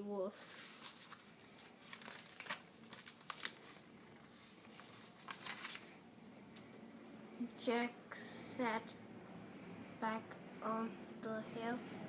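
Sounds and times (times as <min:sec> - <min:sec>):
book page rustling and turning: 0:00.4 - 0:06.7.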